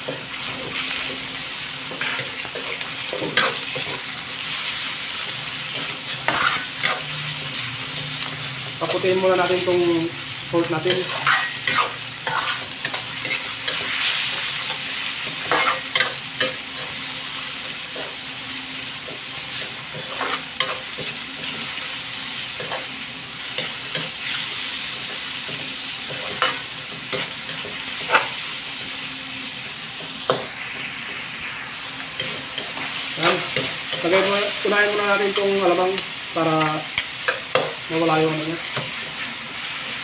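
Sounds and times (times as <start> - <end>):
pork sizzling in a wok: 0.0 - 40.0
metal spatula scraping a pan: 5.2 - 7.2, 10.8 - 17.0, 19.5 - 21.6, 26.1 - 28.4.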